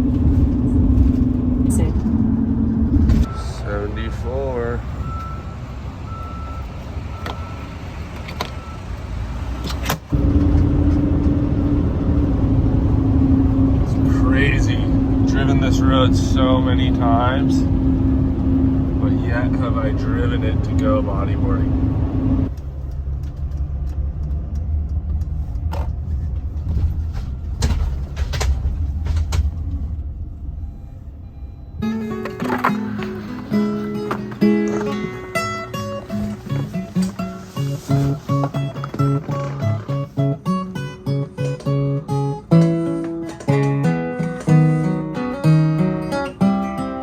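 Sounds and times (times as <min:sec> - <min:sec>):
car road and engine noise: 0:00.0 - 0:47.0
steady hum: 0:10.1 - 0:22.5.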